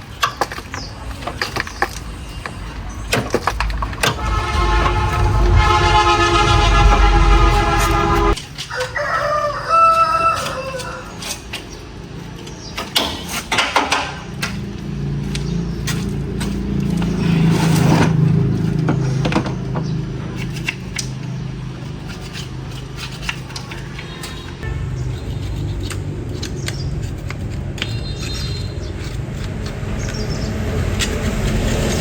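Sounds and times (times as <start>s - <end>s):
low hum: 3.5s - 8.4s
rooster crowing: 8.7s - 11.1s.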